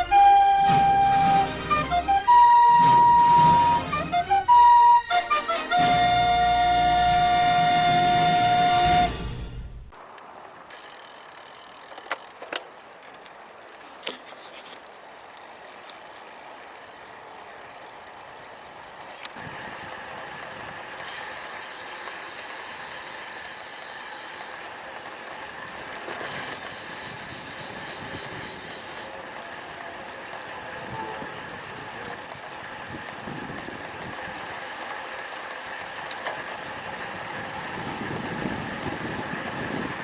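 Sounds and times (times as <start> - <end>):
wind and road noise: 5.8 - 40.0
bike freehub ticking: 10.0 - 40.0.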